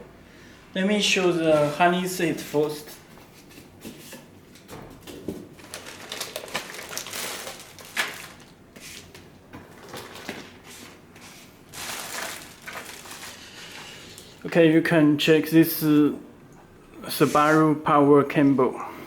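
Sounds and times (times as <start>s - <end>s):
plastic packaging rustling: 1.3s - 14.4s.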